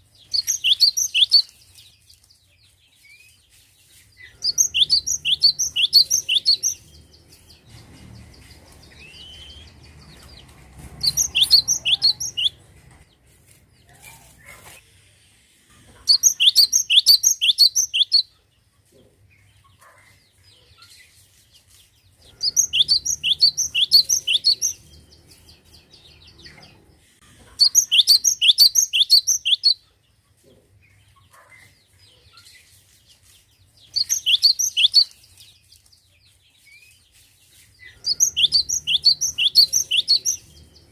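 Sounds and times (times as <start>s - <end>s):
bird singing high repeated notes: 4.4s - 7.0s.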